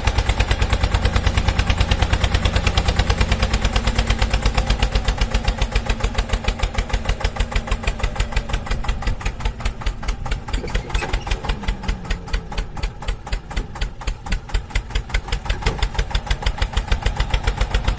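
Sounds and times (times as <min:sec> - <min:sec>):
tractor engine chugging: 0:00.0 - 0:17.9.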